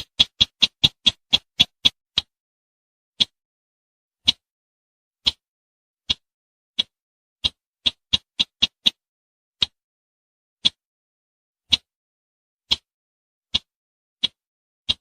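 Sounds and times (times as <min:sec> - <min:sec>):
bird ticking calls: 0:00.0 - 0:02.3, 0:06.1 - 0:09.0, 0:13.6 - 0:15.0.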